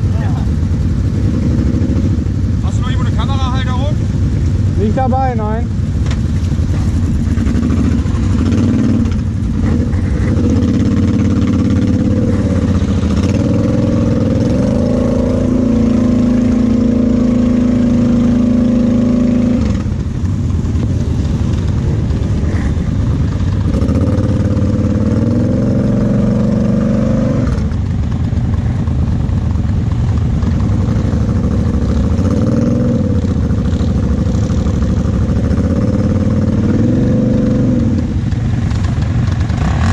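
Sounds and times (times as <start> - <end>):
quad engine revving: 6.8 - 20.1, 21.3 - 27.8, 30.5 - 39.9.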